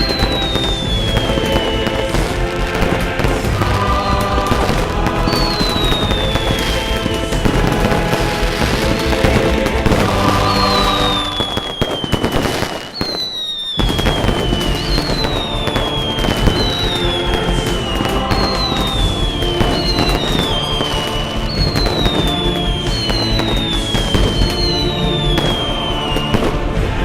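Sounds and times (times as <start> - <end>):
falling whistle: 0.0 - 1.9, 5.3 - 7.5, 10.4 - 26.5
fireworks crackling and banging: 0.0 - 27.0
music: 0.0 - 27.0.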